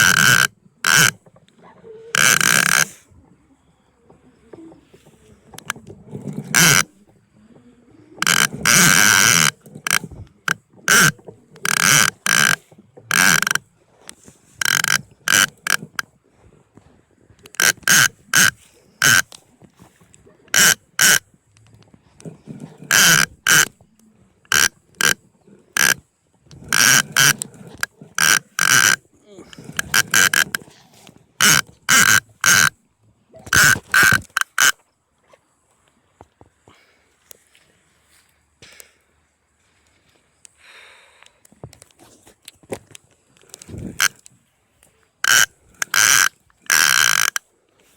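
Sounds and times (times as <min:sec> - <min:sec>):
fishing reel drag buzzing: 0:00.0 - 0:01.2, 0:02.1 - 0:03.0, 0:05.6 - 0:06.9, 0:08.2 - 0:13.7, 0:14.6 - 0:16.0, 0:17.4 - 0:19.4, 0:20.5 - 0:21.2, 0:22.3 - 0:23.8, 0:24.5 - 0:25.2, 0:25.8 - 0:30.7, 0:31.4 - 0:32.8, 0:33.5 - 0:34.8, 0:43.5 - 0:44.2, 0:45.2 - 0:47.4.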